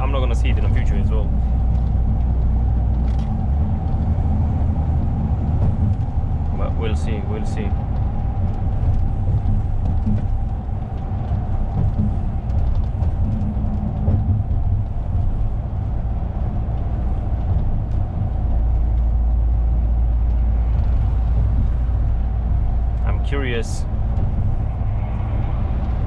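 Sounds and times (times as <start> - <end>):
lorry engine and road rumble: 0.0 - 26.0.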